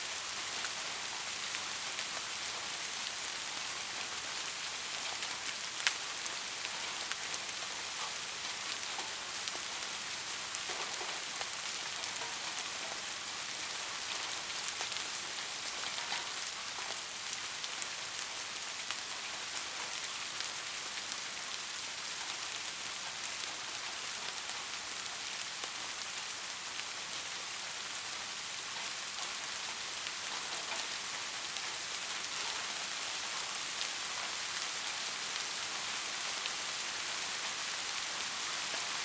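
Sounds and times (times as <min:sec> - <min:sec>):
steady rain hiss: 0:00.0 - 0:39.0
rain drop ticks: 0:04.9 - 0:18.0, 0:28.6 - 0:39.0.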